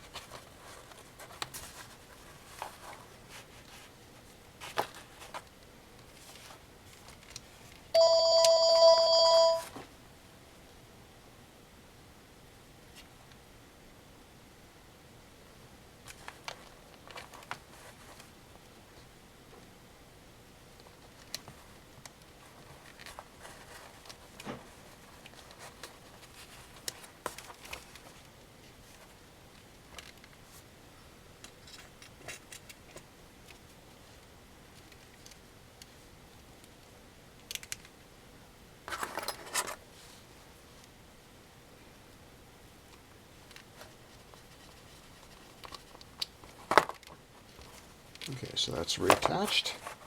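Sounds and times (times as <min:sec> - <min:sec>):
electronic ringing tone: 0:08.0 - 0:09.8
small plastic clicks: 0:37.4 - 0:38.0.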